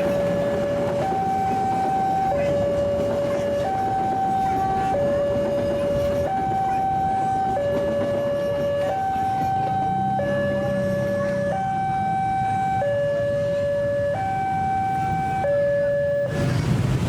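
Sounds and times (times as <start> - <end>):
two-tone warning alarm: 0.0 - 16.4
steady rushing noise: 16.3 - 17.0.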